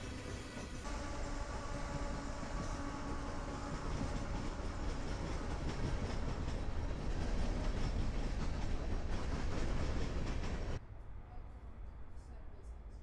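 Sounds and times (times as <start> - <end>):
diesel locomotives rumbling: 0.0 - 12.8
train wheels clicking over rail joints: 2.0 - 10.8.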